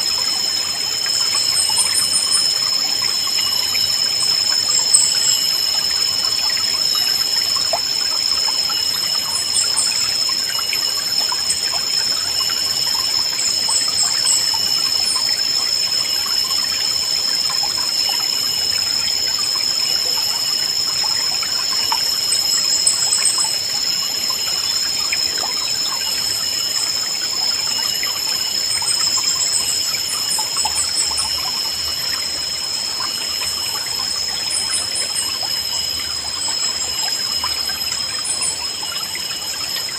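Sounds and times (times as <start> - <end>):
high-pitched ringing tone: 0.0 - 39.9.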